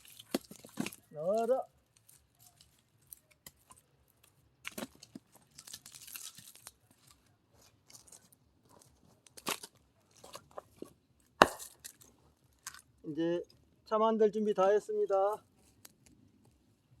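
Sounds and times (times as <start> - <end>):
firewood splintering and tearing: 0.0 - 13.0
wood cracking: 0.0 - 13.6.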